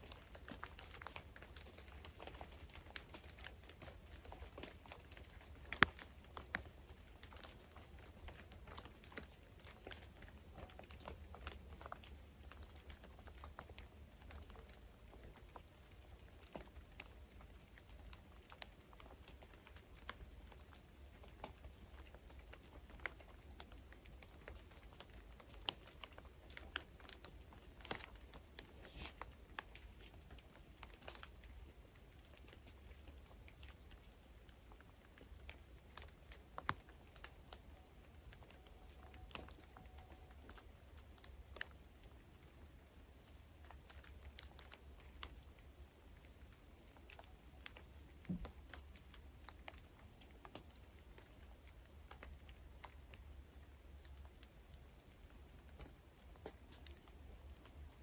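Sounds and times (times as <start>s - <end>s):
faint clicks and ticks: 0.0s - 58.0s.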